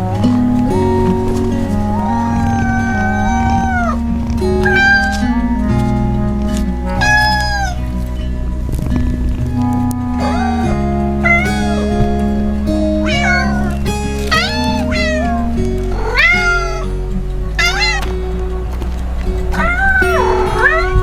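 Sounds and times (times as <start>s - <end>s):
background music: 0.0s - 21.0s
cat meowing: 1.8s - 5.6s, 6.4s - 8.0s, 10.2s - 12.2s, 13.0s - 21.0s.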